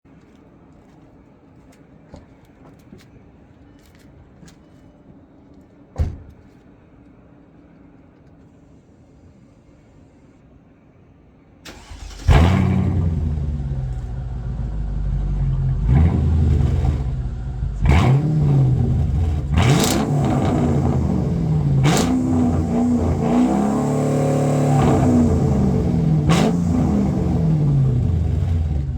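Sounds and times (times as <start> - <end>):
car engine cranking and starting: 11.6 - 28.9
car engine idling and revving: 11.8 - 28.9.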